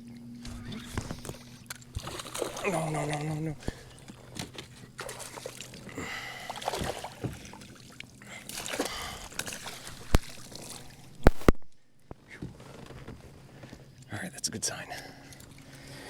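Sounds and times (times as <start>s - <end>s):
water splashing against kayak: 0.5s - 11.6s.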